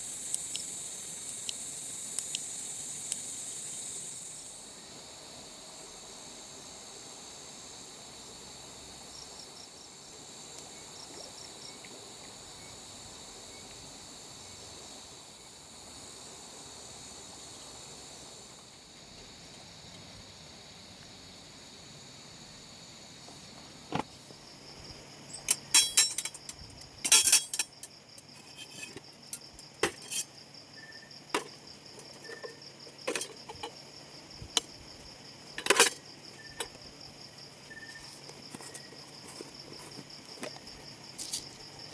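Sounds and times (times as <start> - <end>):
insects chirring: 0.0 - 41.9
sharp clicks and knocks: 31.3 - 33.8.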